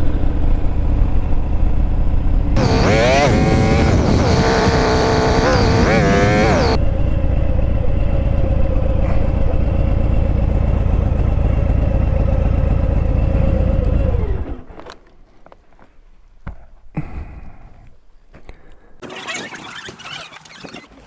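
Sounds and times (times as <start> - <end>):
motorcycle engine idling: 2.6 - 6.8, 9.6 - 14.0.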